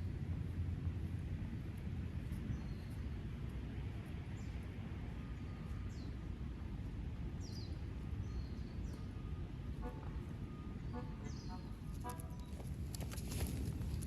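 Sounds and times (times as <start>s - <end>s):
steady low rumble: 0.0s - 14.0s
bird chirping: 10.8s - 12.6s.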